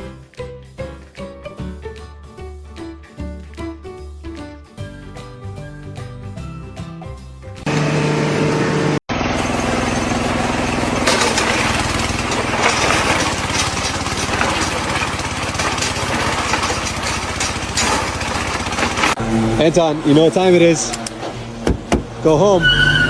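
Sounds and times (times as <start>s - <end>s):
machinery rattling: 7.7s - 20.8s.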